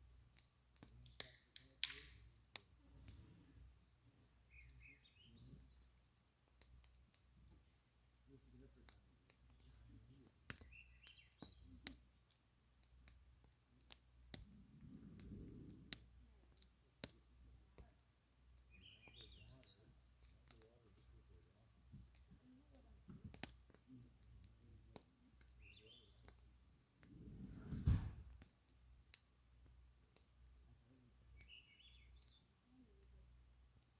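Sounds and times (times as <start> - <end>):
campfire crackling and popping: 0.0 - 33.9.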